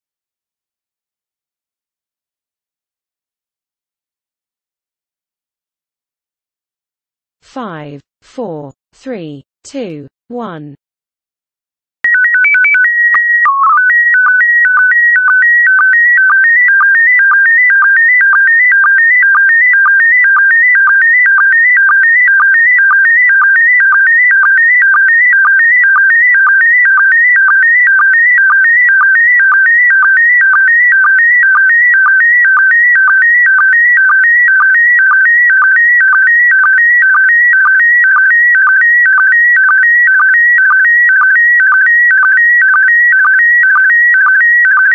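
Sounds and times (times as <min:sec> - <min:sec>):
stepped beeping tones: 0:12.1 - 0:41.4.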